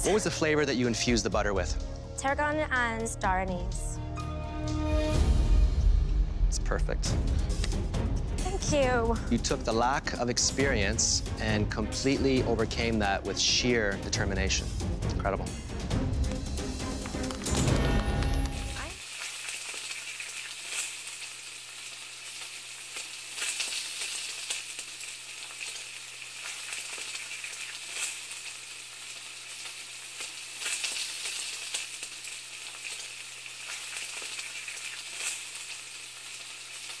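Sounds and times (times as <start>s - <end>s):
food frying with crackling sizzle: 16.7s - 37.0s.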